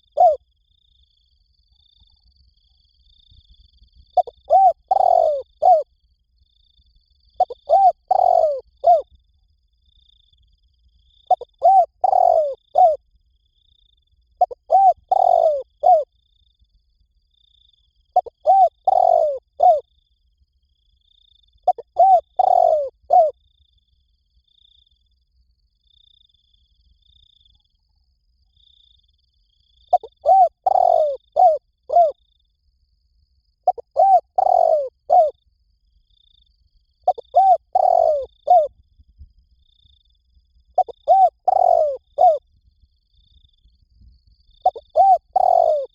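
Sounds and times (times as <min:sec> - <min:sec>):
dove cooing: 0:00.0 - 0:00.4, 0:04.2 - 0:05.9, 0:07.4 - 0:09.1, 0:11.3 - 0:13.0, 0:14.4 - 0:16.1, 0:18.2 - 0:19.8, 0:21.6 - 0:23.3, 0:29.9 - 0:32.2, 0:33.6 - 0:35.3, 0:37.0 - 0:38.7, 0:40.8 - 0:42.4, 0:44.6 - 0:45.9.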